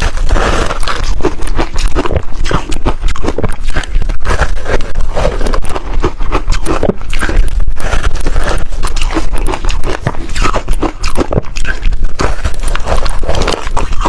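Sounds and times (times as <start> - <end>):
ice being chewed: 0.0 - 14.0.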